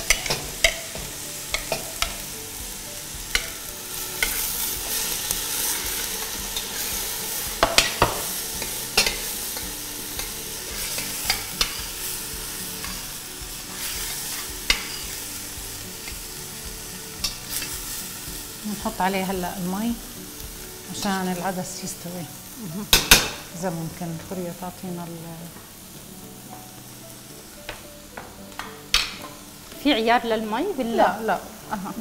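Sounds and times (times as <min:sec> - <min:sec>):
lentils sizzling in a pot: 0:00.0 - 0:32.0.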